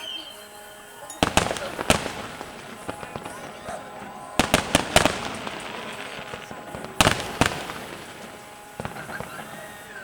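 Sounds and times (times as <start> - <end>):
fireworks crackling: 0.9 - 10.0
fireworks bursting with bangs: 1.2 - 10.0.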